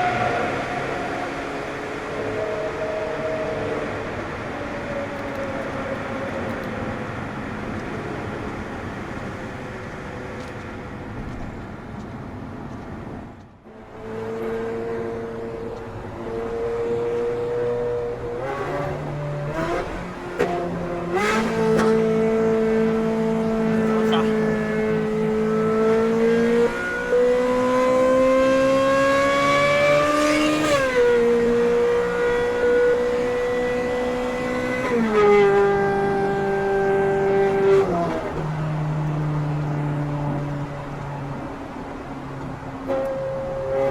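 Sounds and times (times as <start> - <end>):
sports car engine revving and upshifting: 0.0 - 13.0, 13.6 - 43.9
car engine running: 18.1 - 28.6.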